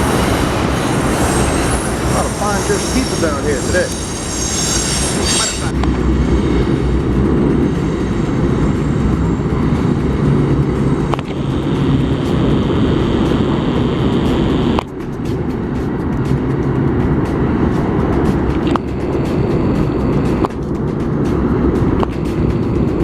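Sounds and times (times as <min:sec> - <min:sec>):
train rumbling past: 0:00.0 - 0:23.0.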